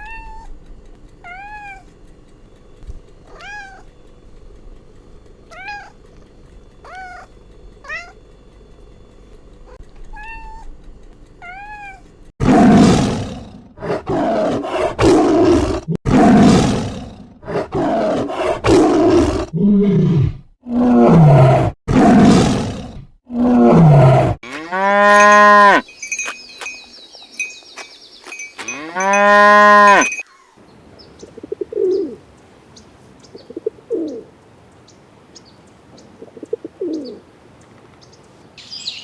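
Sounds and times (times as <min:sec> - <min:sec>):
kitten mewing: 0:03.3 - 0:03.8, 0:05.5 - 0:06.0, 0:06.8 - 0:08.2
lion roaring: 0:12.4 - 0:25.8.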